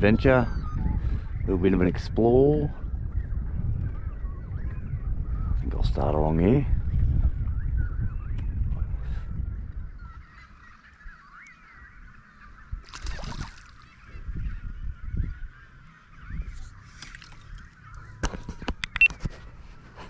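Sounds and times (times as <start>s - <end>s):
waterbirds calling: 0.0s - 20.0s
water splash: 12.8s - 13.9s.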